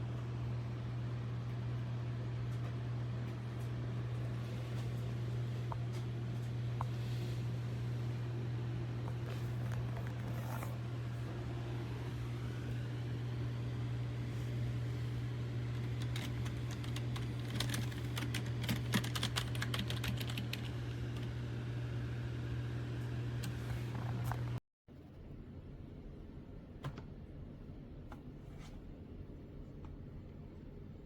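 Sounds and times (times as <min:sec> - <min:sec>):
steady low hum: 0:00.0 - 0:31.0
mechanical keyboard typing clicks: 0:16.0 - 0:20.7.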